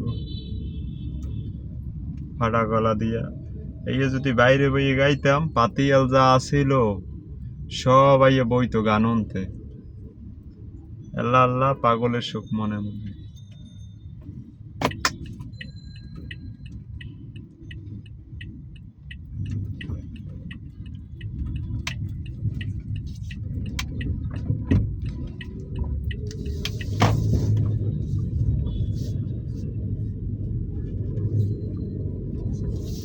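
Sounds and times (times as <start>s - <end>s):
car road and engine rumble: 0.0s - 33.0s
light regular ticking: 14.9s - 27.0s.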